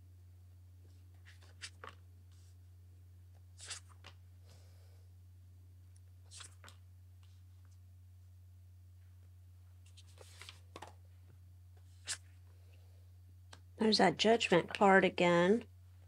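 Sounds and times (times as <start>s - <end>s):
steady low hum: 0.0s - 16.0s
cards rustling and tapping: 9.9s - 11.0s.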